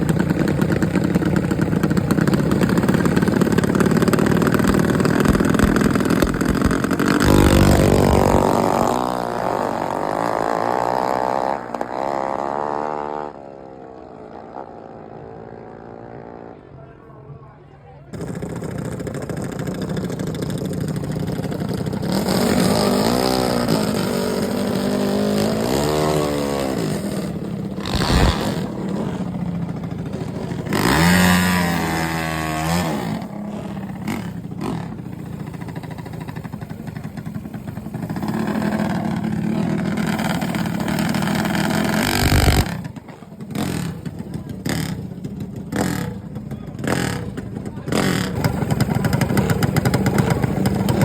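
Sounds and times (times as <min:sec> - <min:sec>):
mini bike engines revving: 0:00.0 - 0:16.5, 0:18.1 - 0:51.0
sharp bang: 0:04.7 - 0:09.4.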